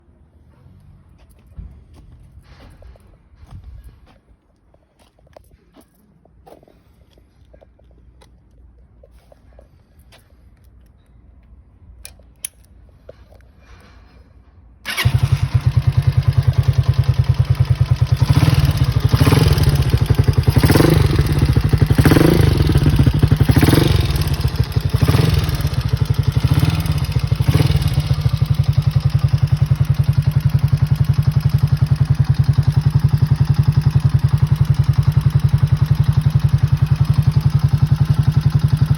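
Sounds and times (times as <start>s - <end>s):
motorcycle engine starting and revving: 14.8s - 38.9s.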